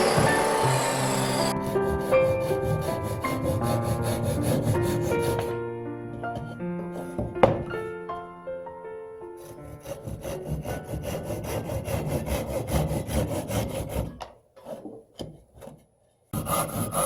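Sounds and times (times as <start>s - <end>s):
hand saw cutting wood: 0.0s - 5.5s, 9.4s - 15.0s, 16.4s - 17.0s.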